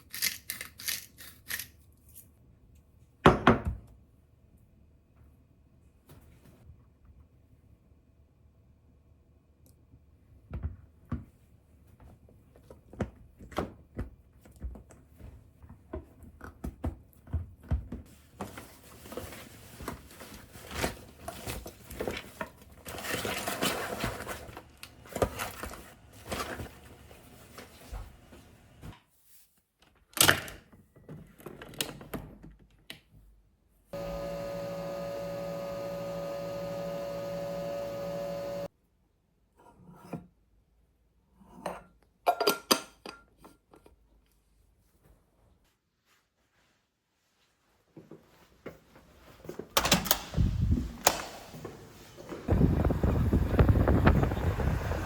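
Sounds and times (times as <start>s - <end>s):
electric appliance humming: 34.0s - 38.7s, 50.1s - 55.0s.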